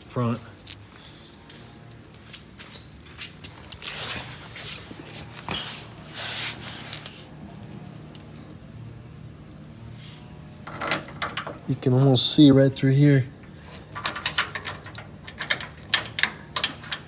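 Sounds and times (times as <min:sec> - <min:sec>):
metal bolts clinking: 0:00.6 - 0:02.1, 0:02.9 - 0:04.2, 0:05.9 - 0:08.6, 0:10.7 - 0:11.7, 0:13.7 - 0:17.0
rustling: 0:00.7 - 0:08.6.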